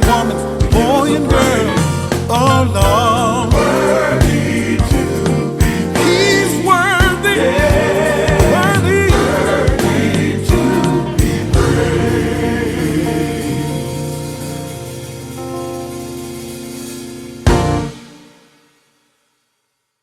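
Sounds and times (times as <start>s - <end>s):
drum hits: 0.0s - 12.7s, 17.5s - 18.3s
men singing gospel: 0.0s - 15.2s
held chords ringing: 0.0s - 18.6s.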